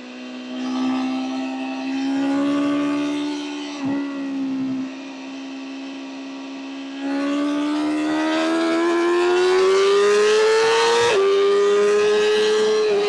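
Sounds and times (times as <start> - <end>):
motorcycle engine revving: 5.7 - 13.0.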